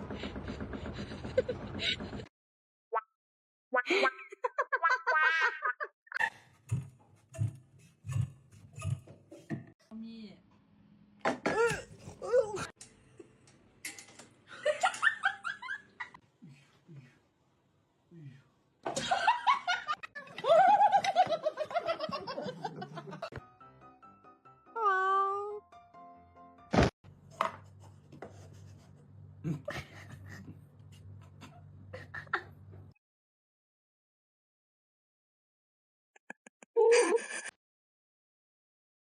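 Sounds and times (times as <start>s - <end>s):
person giggling: 29.4s - 30.6s, 31.2s - 32.6s, 36.8s - 37.5s.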